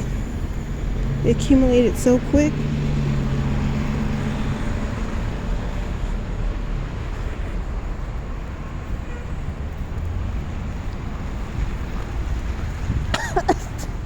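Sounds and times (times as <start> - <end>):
street traffic: 0.0 - 14.0
wind buffeting microphone: 9.6 - 14.0.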